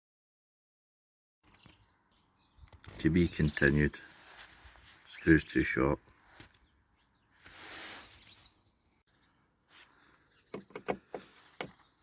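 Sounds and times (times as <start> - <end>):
bird chirp: 1.4 - 12.0
rustle: 4.0 - 5.3, 7.3 - 8.5.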